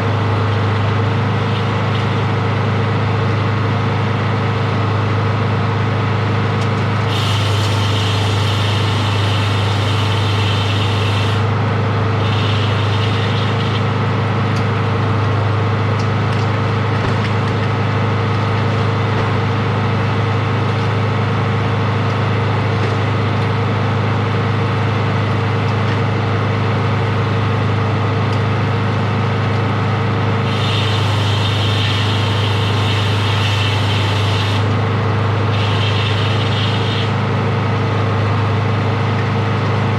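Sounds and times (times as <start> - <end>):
sawmill engine humming: 0.0 - 39.9
high hiss: 30.5 - 34.6.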